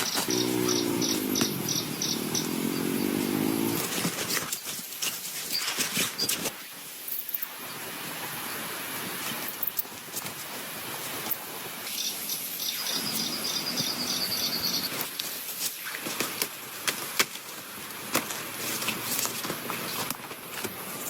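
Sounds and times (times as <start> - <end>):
rapid pulsed chirping call: 0.0 - 3.8, 11.9 - 15.1
rain falling in forest: 0.0 - 21.0.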